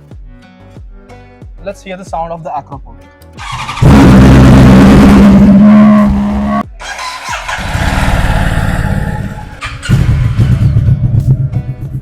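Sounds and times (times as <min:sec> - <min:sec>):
motorcycle engine revving: 0:03.4 - 0:12.0.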